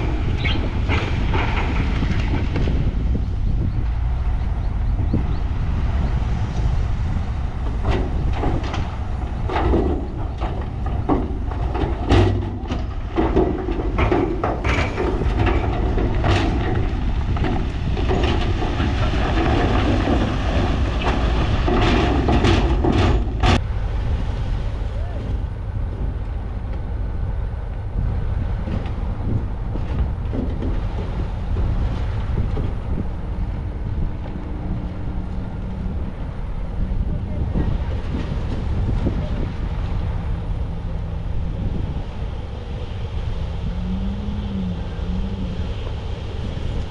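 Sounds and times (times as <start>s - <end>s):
heavy machinery diesel rumble: 0.0s - 46.9s
rock clattering and knocking: 7.6s - 23.6s.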